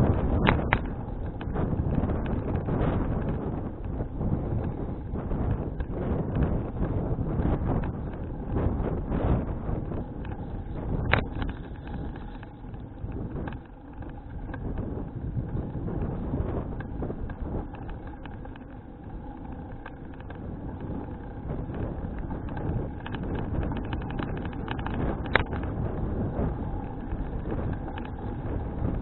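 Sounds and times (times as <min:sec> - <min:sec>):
sharp clicks and rattles: 0:00.0 - 0:29.0
wind rushing over microphone: 0:00.0 - 0:29.0.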